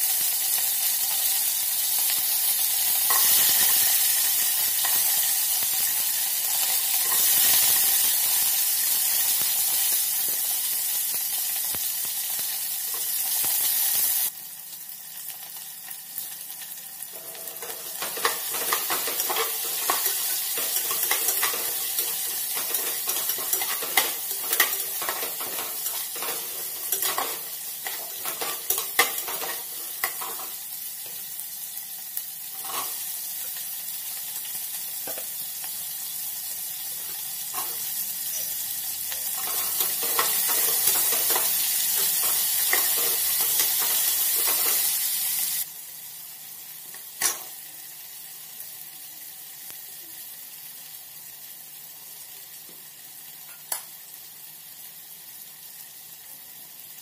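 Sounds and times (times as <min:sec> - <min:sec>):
vegetables sizzling in hot oil: 0:00.0 - 0:57.0
metal spatula scraping a pot: 0:17.2 - 0:30.6, 0:32.6 - 0:33.0.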